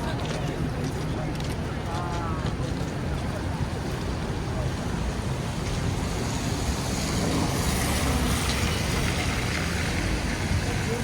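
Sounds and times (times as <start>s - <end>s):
traffic rumble: 0.0s - 11.0s
tyres hissing on wet street: 3.3s - 11.0s.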